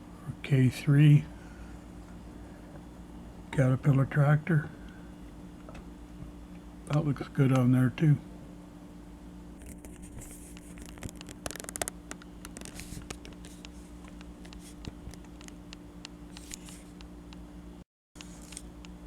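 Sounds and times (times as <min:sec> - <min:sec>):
low electrical hum: 0:00.0 - 0:19.0
rapid ticks: 0:10.5 - 0:17.4
toy models clicking and scraping: 0:10.6 - 0:15.6.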